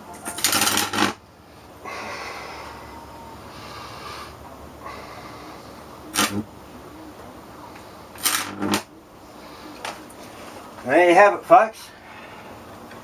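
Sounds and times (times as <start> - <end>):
electric zapper crackling zap: 0.4 - 1.2, 6.1 - 6.5, 8.2 - 8.9.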